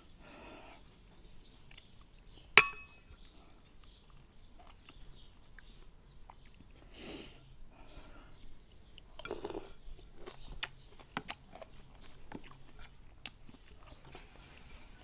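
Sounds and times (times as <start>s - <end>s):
utensil clinking on bowl: 2.6s - 3.0s.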